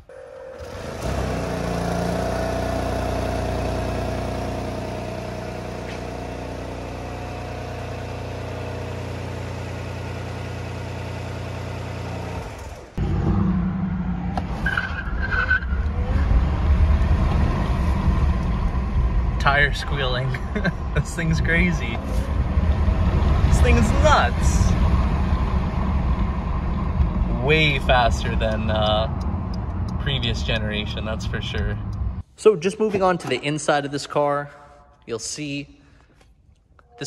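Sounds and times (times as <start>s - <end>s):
generator engine droning hum: 0.0s - 13.9s, 16.6s - 32.2s
road noise: 0.6s - 32.3s
car driving at speed: 13.0s - 32.2s.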